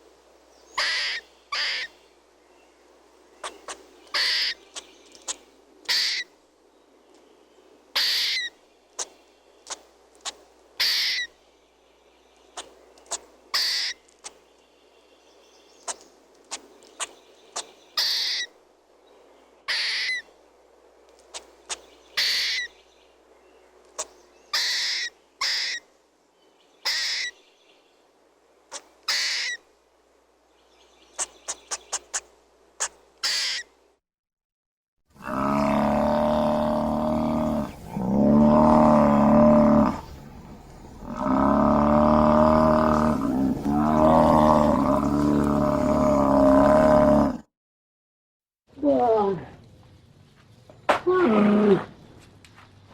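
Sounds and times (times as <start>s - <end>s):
harsh raspy bird calls: 0.7s - 2.0s, 3.4s - 6.4s, 7.9s - 11.4s, 12.5s - 14.4s, 15.8s - 18.6s, 19.6s - 20.3s, 21.3s - 22.8s, 24.0s - 25.9s, 26.8s - 27.4s, 28.7s - 29.7s, 31.1s - 33.8s, 35.2s - 47.4s
quick bird chirps: 21.3s - 22.7s, 31.1s - 33.7s.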